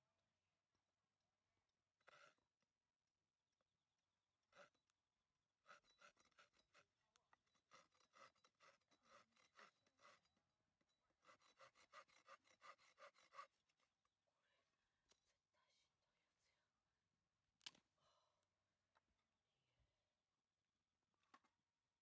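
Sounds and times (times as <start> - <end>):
handsaw cutting wood: 4.5 - 4.8, 5.6 - 10.4, 11.1 - 13.7.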